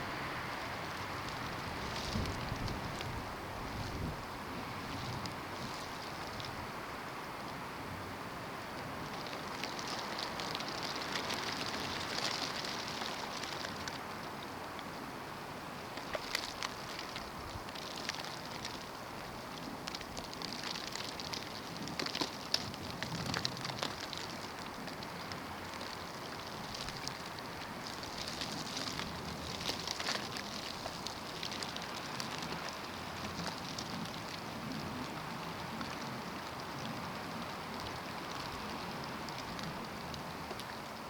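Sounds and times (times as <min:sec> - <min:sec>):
snow ticking on surfaces: 0:08.7 - 0:41.0.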